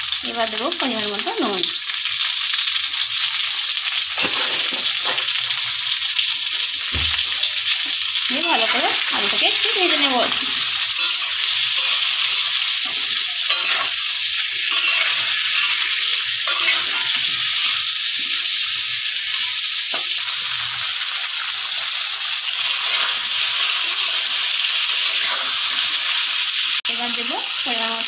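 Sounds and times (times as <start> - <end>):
food sizzling in oil: 0.0 - 28.0
metal spatula scraping a pan: 4.2 - 5.3, 8.4 - 18.6, 22.5 - 24.3.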